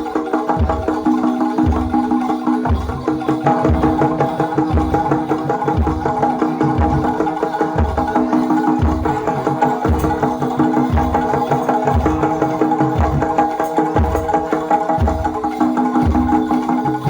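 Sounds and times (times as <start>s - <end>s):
drums: 0.0s - 17.0s.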